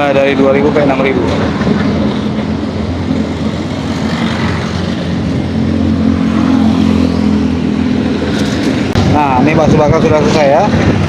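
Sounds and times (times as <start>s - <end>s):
traffic engine hum: 0.0s - 11.0s.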